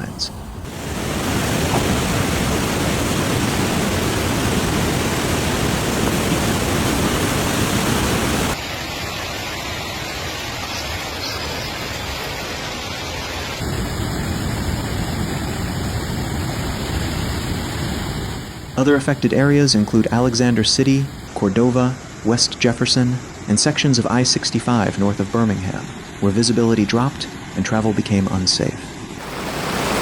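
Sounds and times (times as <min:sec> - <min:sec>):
floodwater rushing: 0:00.0 - 0:21.1, 0:29.2 - 0:30.0
heavy rain: 0:00.0 - 0:21.3, 0:29.2 - 0:30.0.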